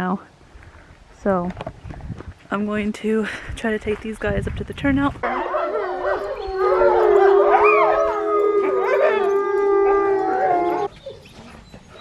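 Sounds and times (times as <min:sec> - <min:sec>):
wolfdogs howling in chorus: 0:05.2 - 0:10.9.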